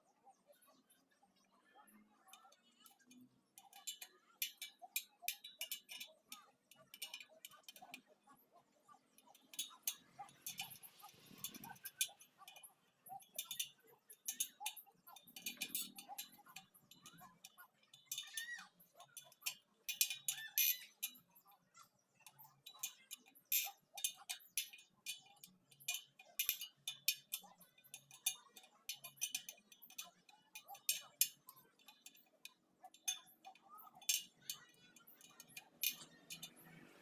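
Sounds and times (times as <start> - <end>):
metallic clicks on wheel spokes: 2.3 - 8.0, 9.1 - 21.5, 22.2 - 37.0.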